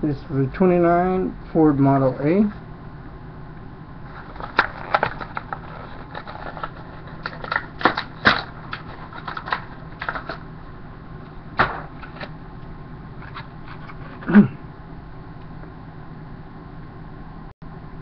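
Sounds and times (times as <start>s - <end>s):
plastic packaging crackling: 4.0s - 10.4s
louder knock: 11.6s - 12.0s.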